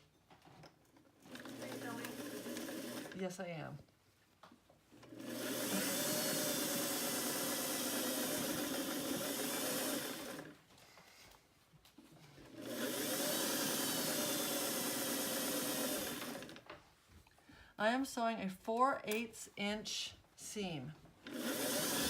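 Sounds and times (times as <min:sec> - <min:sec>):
electric sewing machine running: 0:01.2 - 0:03.3, 0:05.1 - 0:10.6, 0:12.4 - 0:16.6, 0:21.2 - 0:22.0.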